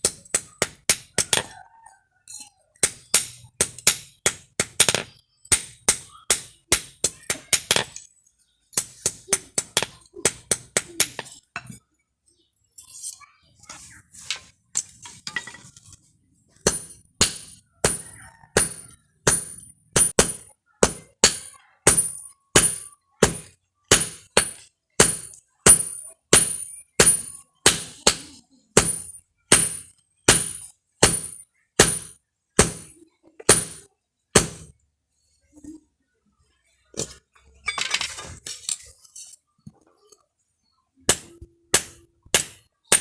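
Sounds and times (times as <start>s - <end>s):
hammer striking steel: 16.6s - 34.7s, 41.1s - 43.0s.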